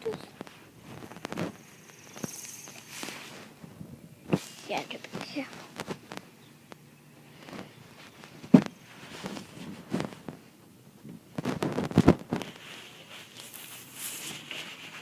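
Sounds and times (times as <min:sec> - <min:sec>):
knocks and thumps: 0:08.4 - 0:10.4.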